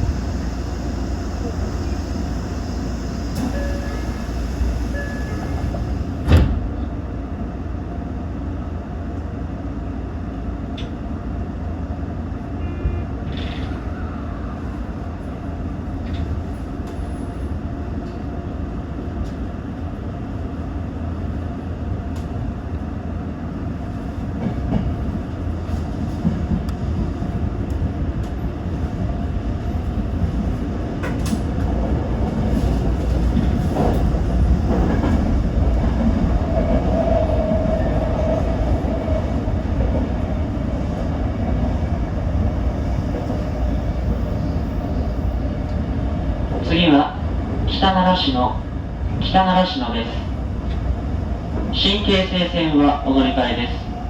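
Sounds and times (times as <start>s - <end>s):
electric train pulling away: 0.0s - 6.4s.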